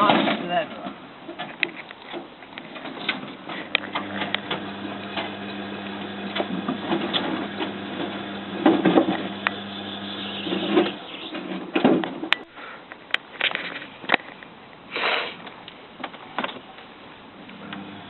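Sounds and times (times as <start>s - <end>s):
washing machine motor hum: 3.7s - 11.3s, 17.5s - 18.0s.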